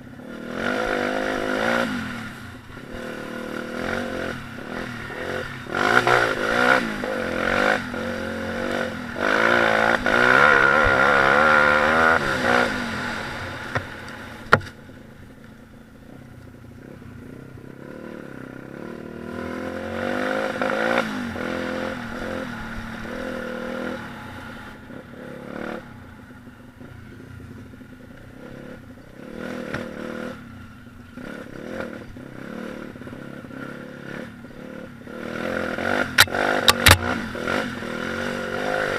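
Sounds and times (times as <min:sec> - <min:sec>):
motorcycle engine revving: 0:00.0 - 0:38.9
sharp click: 0:36.2 - 0:37.1.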